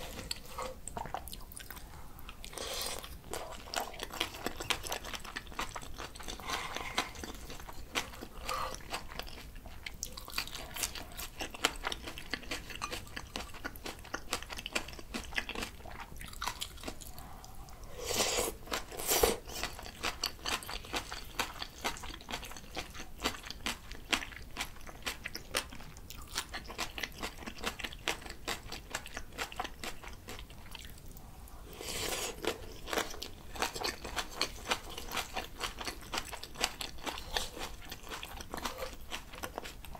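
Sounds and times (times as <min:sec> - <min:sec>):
spoon scraping a bowl: 0:00.0 - 0:00.8
crunchy chewing: 0:00.0 - 0:31.0, 0:31.7 - 0:39.9.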